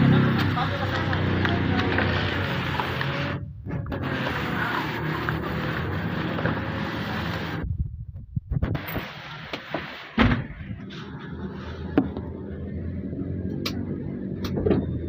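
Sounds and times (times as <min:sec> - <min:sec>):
loud thump: 0:10.2 - 0:10.6.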